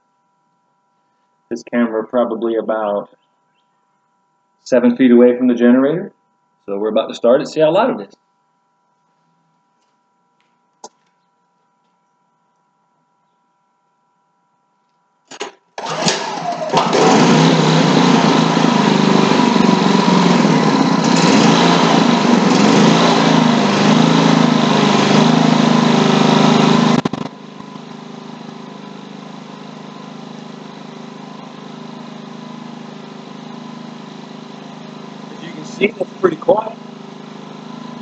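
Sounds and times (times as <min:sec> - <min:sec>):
generator engine running: 0:15.8 - 0:38.0.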